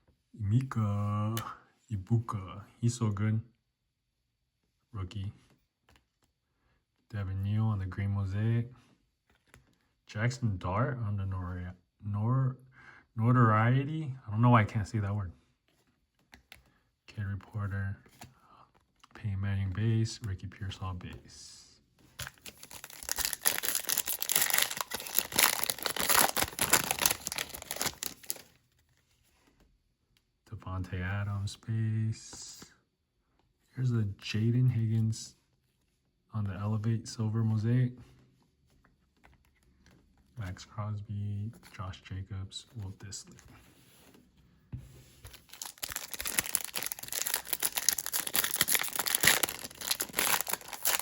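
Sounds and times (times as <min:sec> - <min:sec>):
foil wrapper crinkling and tearing: 0:22.2 - 0:28.5, 0:45.3 - 0:51.0.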